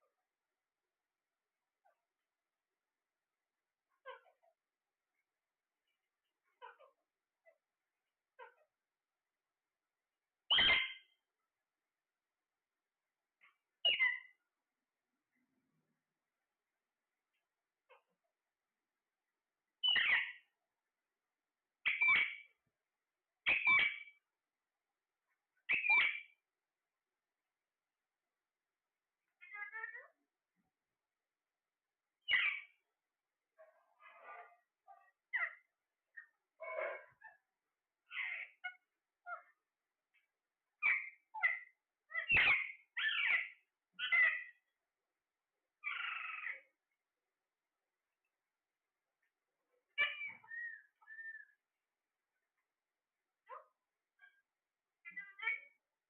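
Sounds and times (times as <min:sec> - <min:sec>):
parrot calling: 0:03.9 - 0:04.5, 0:10.5 - 0:11.2, 0:13.4 - 0:14.4, 0:19.8 - 0:20.5, 0:21.8 - 0:22.6, 0:23.4 - 0:24.2, 0:25.6 - 0:26.4, 0:29.4 - 0:30.2, 0:32.2 - 0:32.8, 0:34.0 - 0:37.4, 0:38.0 - 0:39.6, 0:40.8 - 0:44.7, 0:45.8 - 0:46.7, 0:49.9 - 0:51.6, 0:55.0 - 0:55.8.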